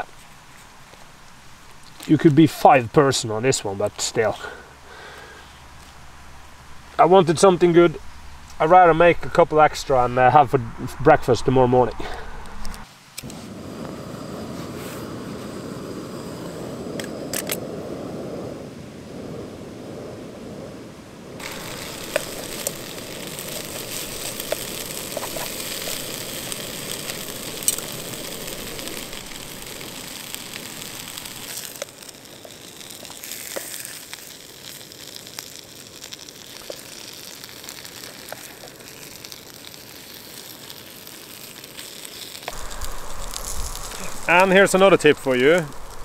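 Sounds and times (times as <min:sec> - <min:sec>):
dough frying in a pan: 0:21.4 - 0:46.0.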